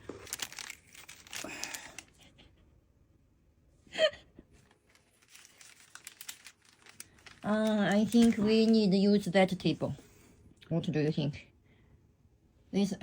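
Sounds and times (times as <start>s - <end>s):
short rustle: 4.8s - 8.7s.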